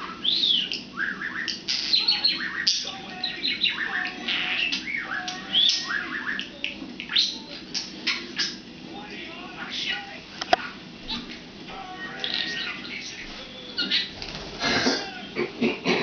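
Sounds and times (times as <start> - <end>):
budgerigar chattering and warbling: 0.0 - 8.7.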